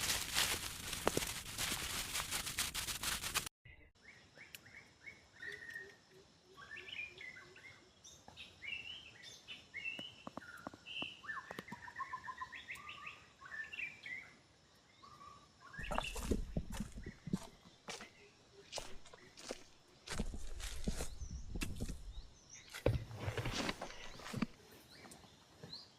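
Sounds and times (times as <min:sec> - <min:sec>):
loud rustling: 0:00.0 - 0:03.5
birds chirping: 0:03.7 - 0:25.9.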